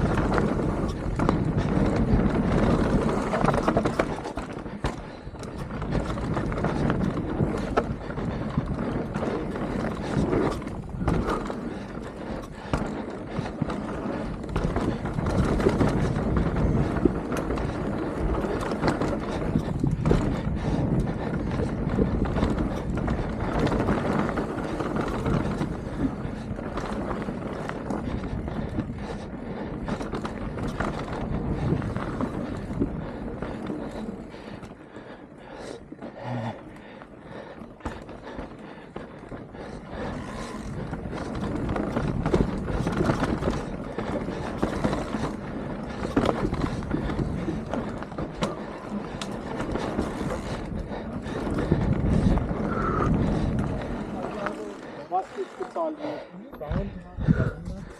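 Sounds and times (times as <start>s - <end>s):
bike knocks and rattles: 0.0s - 34.9s, 37.6s - 56.0s
bike tyres crunching on dirt: 0.0s - 57.9s
wind on microphone: 39.4s - 54.4s, 56.7s - 57.9s.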